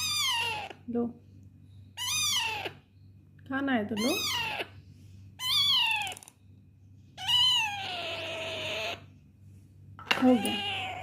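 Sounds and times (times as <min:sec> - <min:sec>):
parrot meow-like calls: 0:02.0 - 0:02.8, 0:07.2 - 0:09.1.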